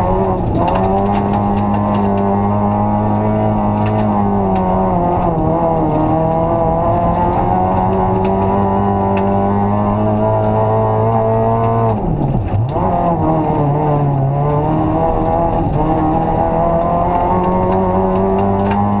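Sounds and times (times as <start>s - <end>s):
rally car engine: 0.0s - 19.0s.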